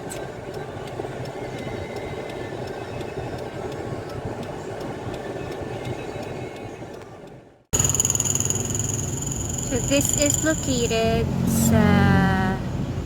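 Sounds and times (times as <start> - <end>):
street traffic rumble: 7.8 - 13.0.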